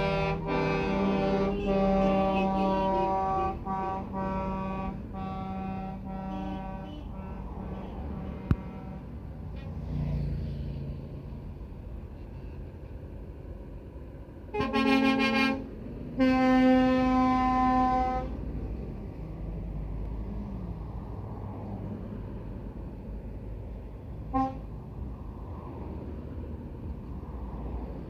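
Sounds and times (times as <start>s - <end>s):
truck horn blasts: 0.0s - 9.3s, 14.5s - 18.5s, 24.2s - 24.8s
rumble of passing engines: 0.0s - 28.0s.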